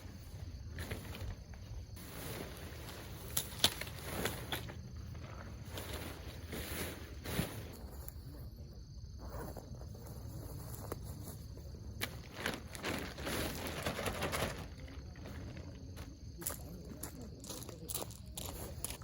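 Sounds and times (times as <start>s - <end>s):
rustling and scraping: 0.0s - 8.2s, 9.4s - 15.7s.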